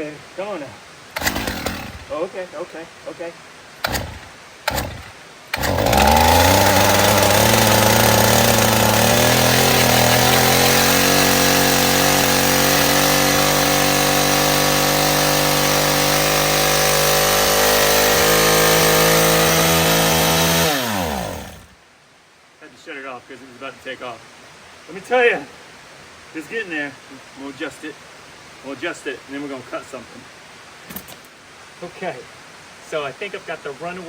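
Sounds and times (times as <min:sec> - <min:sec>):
chainsaw running fast: 0:01.2 - 0:02.3, 0:03.8 - 0:21.8.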